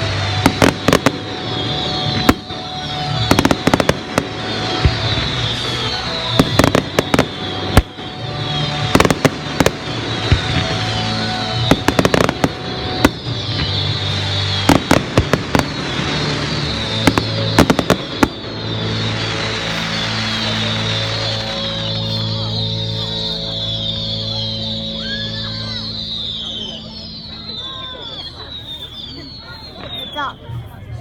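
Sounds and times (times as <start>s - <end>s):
firework falling whistles: 0.0s - 30.7s
firework bangs and crackling: 0.0s - 31.0s.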